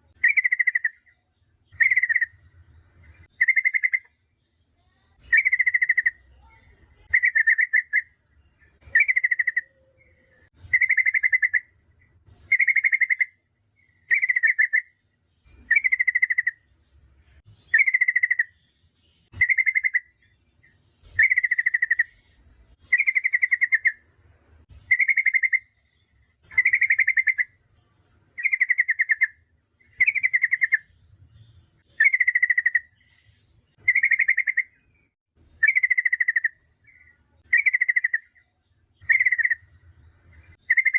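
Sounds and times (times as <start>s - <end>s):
bird chattering call: 0.2s - 2.4s, 3.2s - 4.1s, 5.2s - 8.2s, 8.8s - 11.7s, 12.5s - 13.4s, 15.6s - 16.6s, 17.7s - 18.6s, 19.3s - 20.2s, 21.0s - 22.2s, 22.8s - 24.0s, 24.8s - 25.8s, 26.4s - 27.6s, 28.4s - 30.9s, 32.0s - 34.8s, 35.6s - 39.7s, 40.5s - 40.9s.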